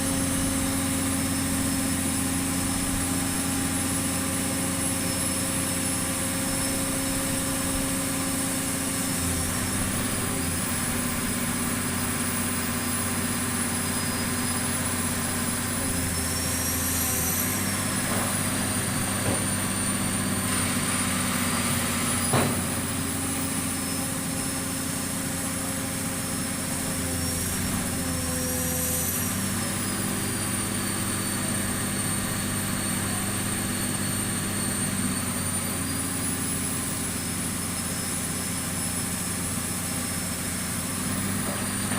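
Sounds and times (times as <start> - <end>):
pile driver engine running: 0.0 - 41.9.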